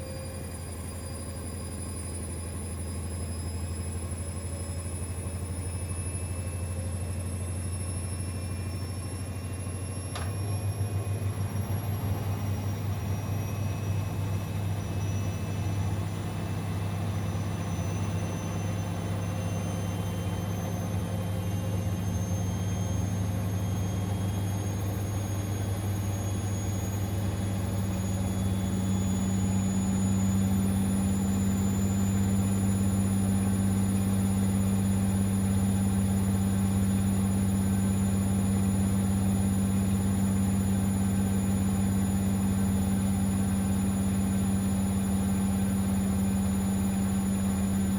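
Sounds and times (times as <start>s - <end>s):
high motor whine: 0.0s - 47.9s
washing machine humming: 10.2s - 47.9s.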